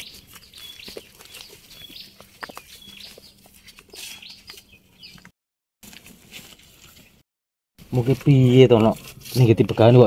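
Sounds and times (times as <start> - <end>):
small bird chirping: 0.0 - 5.3.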